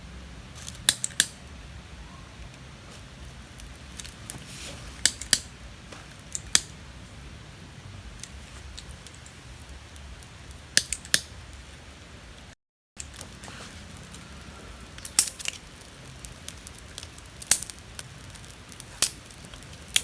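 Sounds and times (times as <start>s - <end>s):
sharp clicks: 0.8s - 1.4s.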